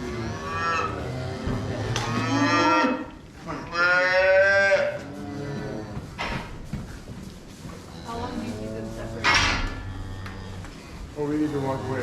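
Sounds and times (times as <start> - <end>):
cattle mooing: 0.0 - 6.1, 7.9 - 10.7.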